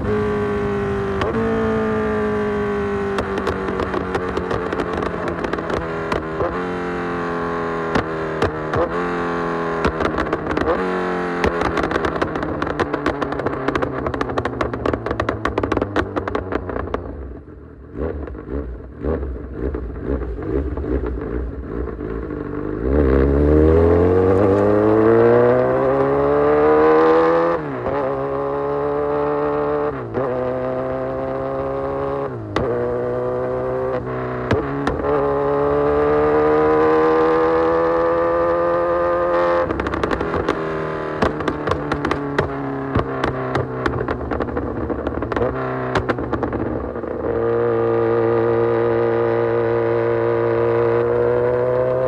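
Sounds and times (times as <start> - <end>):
motorcycle engine revving: 0.0 - 52.0
exhaust crackling and popping: 2.6 - 6.9, 7.8 - 9.0, 9.7 - 17.5, 31.0 - 35.6, 36.4 - 48.0.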